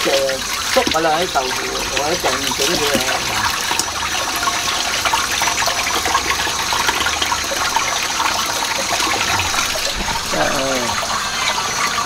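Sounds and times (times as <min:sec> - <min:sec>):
tap water splashing into sink: 0:00.0 - 0:12.0.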